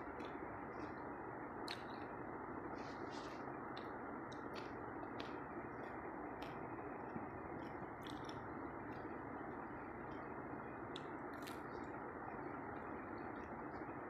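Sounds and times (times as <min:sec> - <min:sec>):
wet mouth smacks while chewing: 0:07.6 - 0:09.1.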